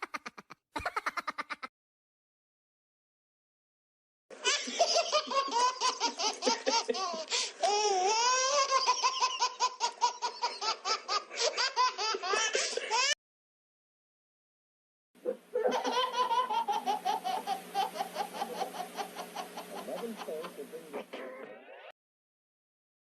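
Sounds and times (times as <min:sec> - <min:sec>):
person laughing hard: 0:00.0 - 0:01.7, 0:04.4 - 0:13.2, 0:15.6 - 0:21.6.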